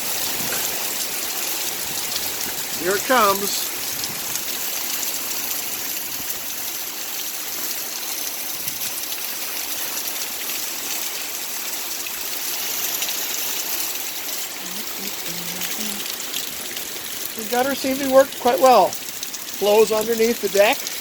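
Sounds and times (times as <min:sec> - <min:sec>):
rainwater rushing through gutter: 0:00.0 - 0:21.0.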